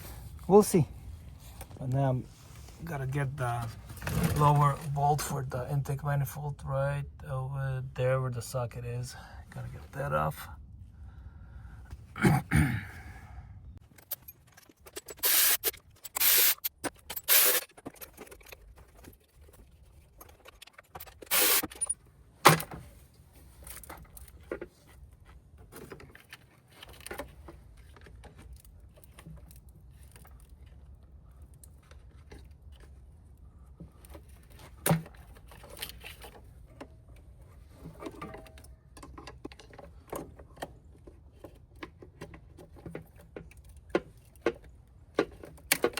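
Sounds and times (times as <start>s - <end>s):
socket wrench ratcheting on bolt: 15.0s - 17.7s, 21.2s - 21.8s.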